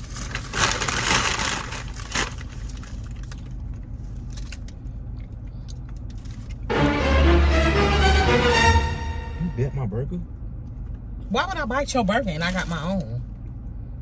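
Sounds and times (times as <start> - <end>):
crunching and rustling: 0.0 - 4.8
car cabin road rumble: 0.0 - 6.7.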